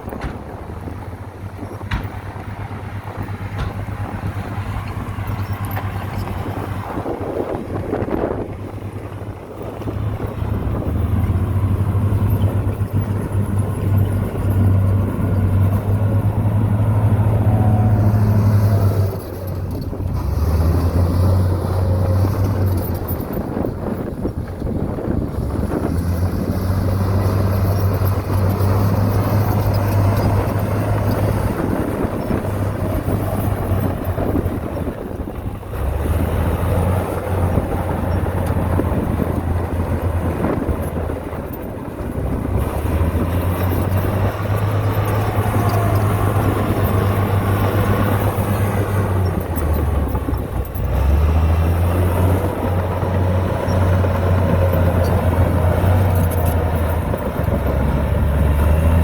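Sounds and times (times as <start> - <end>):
heavy diesel engine: 0.0 - 59.0.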